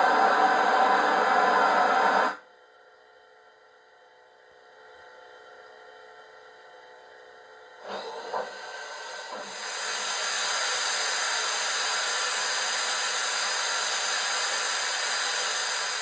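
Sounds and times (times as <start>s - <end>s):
steam hiss through speaker: 0.0s - 2.4s, 7.8s - 16.0s.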